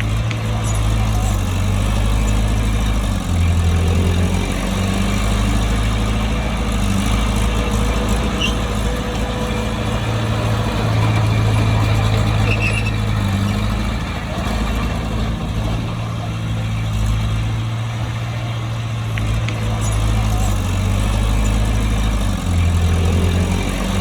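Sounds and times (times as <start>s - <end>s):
bulldozer engine droning: 0.0s - 24.0s
faint high squeaks: 7.0s - 13.6s.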